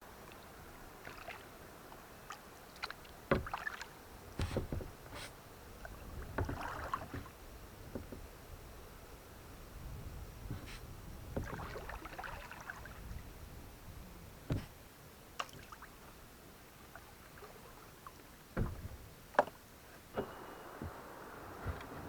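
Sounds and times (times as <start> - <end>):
paddle strokes splashing: 0.2 - 8.3, 10.5 - 13.6, 16.8 - 22.0.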